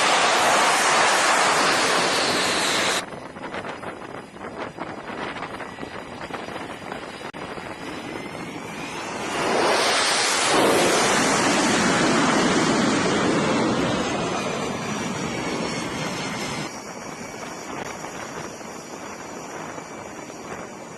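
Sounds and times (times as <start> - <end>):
sea noise: 0.0 - 3.0, 8.8 - 15.6
aircraft engine passing: 0.0 - 20.9
wind noise on microphone: 0.0 - 20.9.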